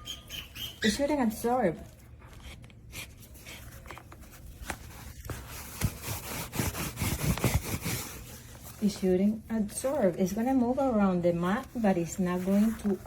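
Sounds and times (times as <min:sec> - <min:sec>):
scratchy rubbing of mat: 0:05.1 - 0:09.0.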